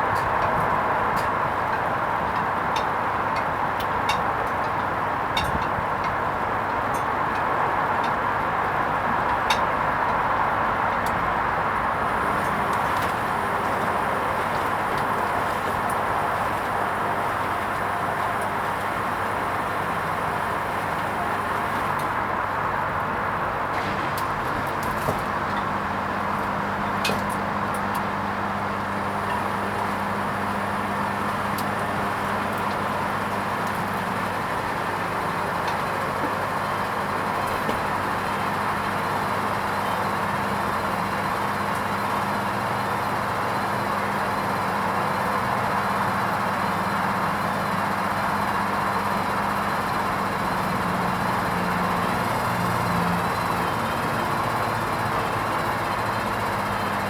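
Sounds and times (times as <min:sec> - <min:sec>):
washing machine motor whir: 0:11.9 - 0:22.2.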